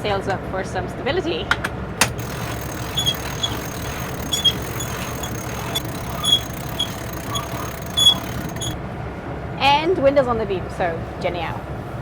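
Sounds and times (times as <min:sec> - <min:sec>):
faint clicks: 0:02.0 - 0:08.8
boat engine running: 0:02.1 - 0:08.8
high squeaks: 0:02.1 - 0:08.8.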